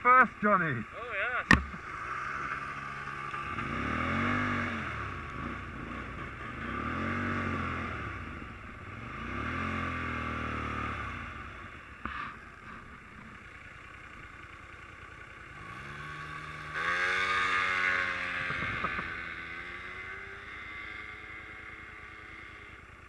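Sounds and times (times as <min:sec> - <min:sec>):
small bike engine revving: 0:15.6 - 0:22.6.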